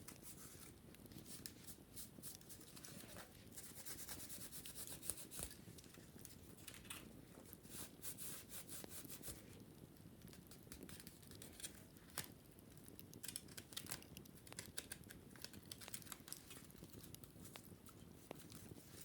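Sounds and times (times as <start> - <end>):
wicker basket crackling: 10.2 - 19.0.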